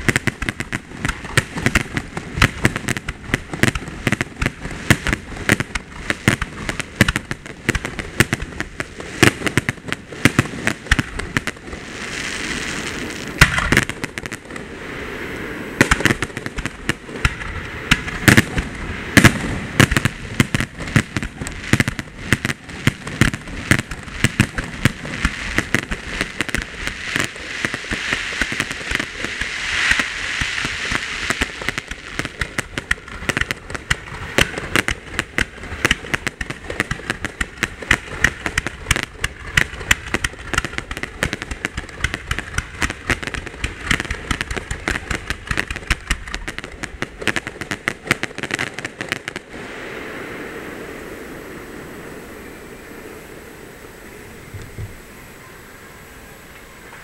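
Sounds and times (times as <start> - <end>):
hissing crackle: 0.0 - 57.0
firework shells bursting: 13.1 - 14.7, 15.8 - 49.6.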